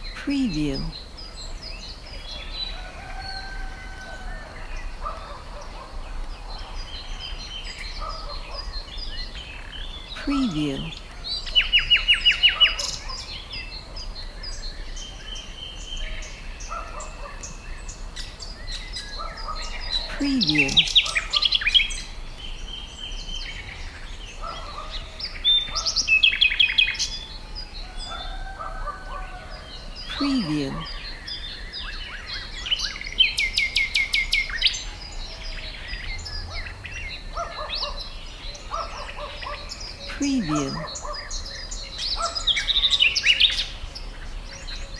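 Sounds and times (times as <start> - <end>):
songbirds singing and chirping: 0.0 - 44.9.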